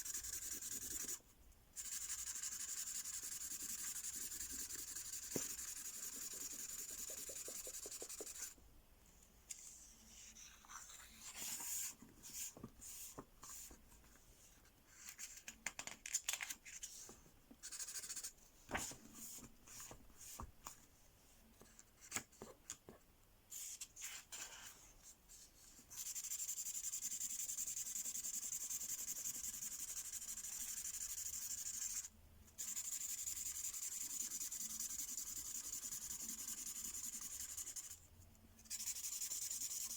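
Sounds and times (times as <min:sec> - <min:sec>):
marker pen scribbling on paper: 0:00.0 - 0:01.2, 0:01.8 - 0:08.6, 0:26.0 - 0:38.0, 0:38.6 - 0:39.9.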